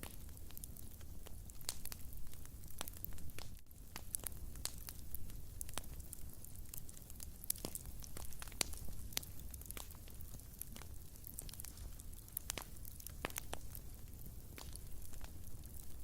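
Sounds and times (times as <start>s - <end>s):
low rumble of burning: 0.0s - 16.0s
wood fire crackling and popping: 0.0s - 16.0s.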